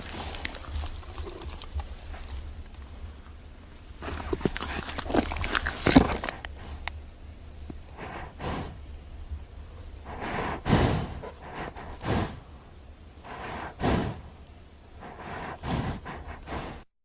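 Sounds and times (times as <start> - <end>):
animal breathing hard: 0.0 - 2.6, 3.9 - 6.9, 7.8 - 8.8, 10.0 - 12.6, 13.2 - 14.3, 15.0 - 16.9.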